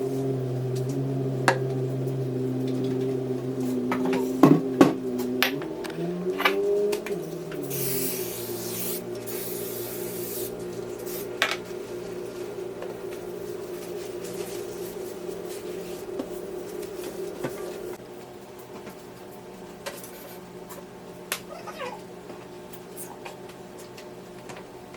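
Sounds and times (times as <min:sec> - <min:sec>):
steady low hum: 0:00.0 - 0:24.9
hiss: 0:07.6 - 0:11.3.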